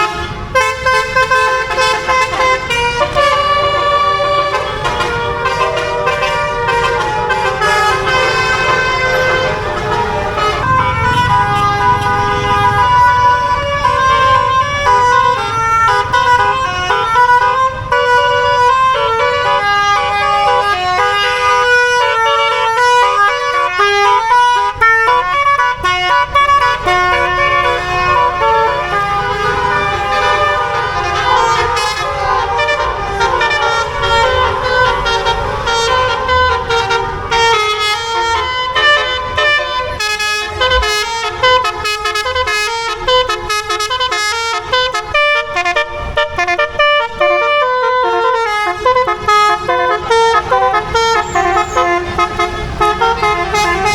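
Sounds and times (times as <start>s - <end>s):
musical air horn melodies: 0.0s - 53.9s.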